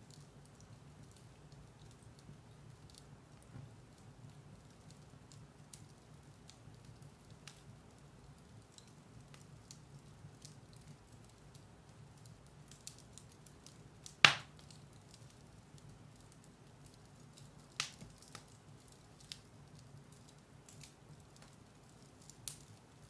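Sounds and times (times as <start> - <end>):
firewood crackling: 0.0 - 23.0
loud sharp pop of fire: 14.1 - 14.6.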